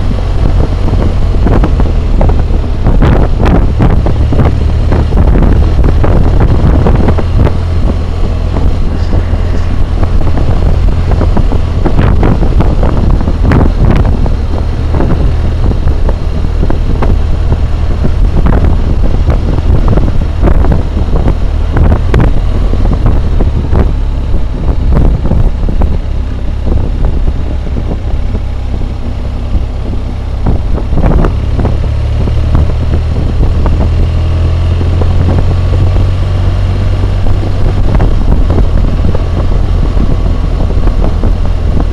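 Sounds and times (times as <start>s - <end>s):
motorcycle engine drone: 0.0s - 41.9s
wind buffeting microphone: 0.0s - 41.9s.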